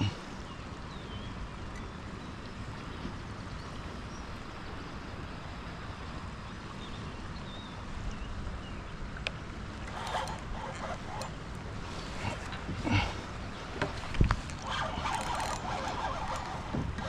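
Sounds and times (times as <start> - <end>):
river rushing: 9.6 - 17.0.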